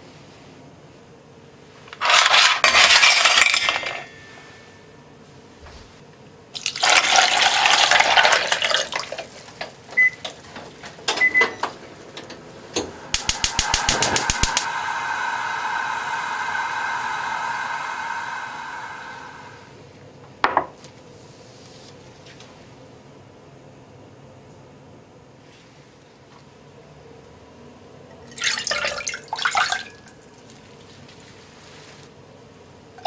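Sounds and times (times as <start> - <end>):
tap water rushing into pot: 6.6 - 9.3
steady hiss: 12.7 - 19.8.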